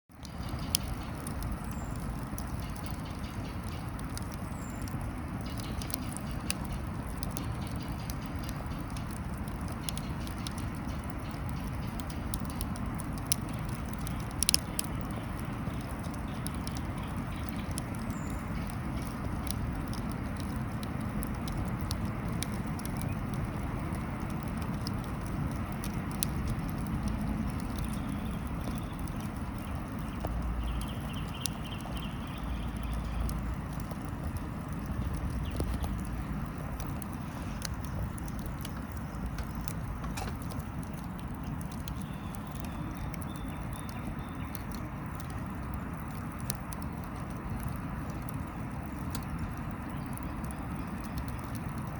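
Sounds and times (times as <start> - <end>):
wood fire crackling in a grill: 0.1 - 51.9.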